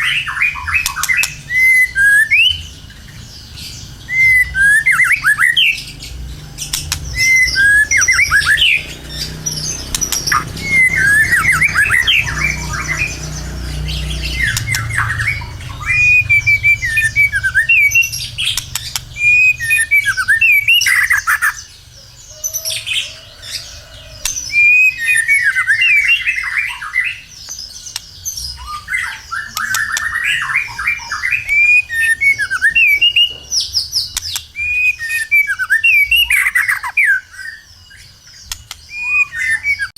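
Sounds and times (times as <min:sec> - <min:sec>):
low hum: 0:00.0 - 0:22.0
bird singing whistles and chatter: 0:00.0 - 0:39.9.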